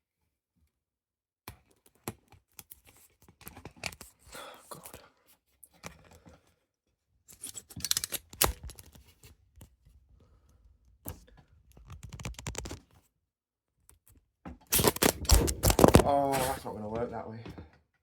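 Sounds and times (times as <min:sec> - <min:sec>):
handling clicks scrapes and rustles: 0:07.3 - 0:09.1, 0:14.7 - 0:16.7.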